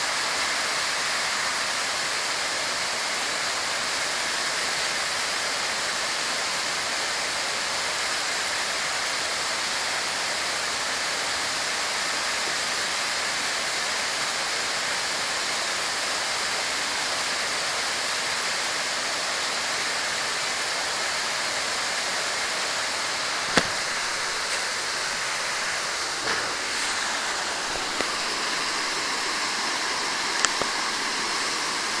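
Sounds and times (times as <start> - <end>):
waterfall roaring: 21.9 - 32.0
sharp clicks: 23.5 - 27.0, 27.6 - 29.6, 30.2 - 32.0.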